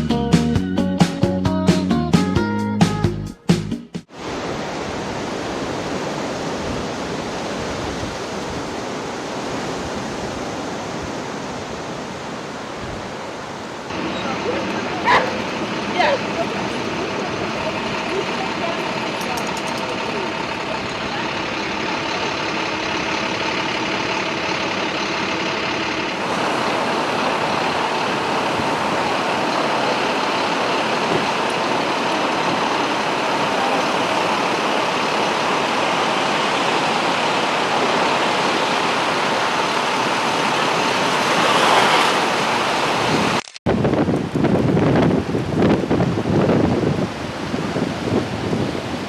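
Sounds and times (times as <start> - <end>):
wind: 4.1 - 49.0
traffic: 4.2 - 46.2
vehicle engine idling: 13.9 - 41.5.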